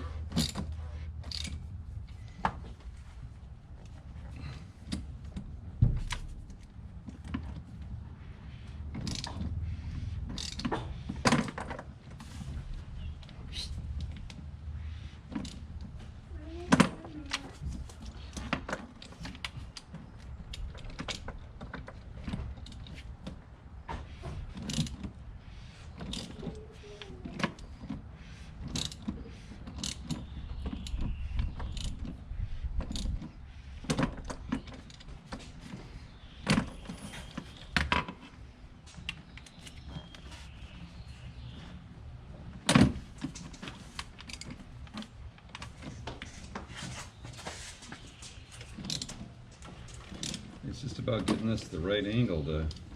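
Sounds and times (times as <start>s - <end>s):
tools clicking and clinking: 0.2s - 1.7s, 10.3s - 11.8s.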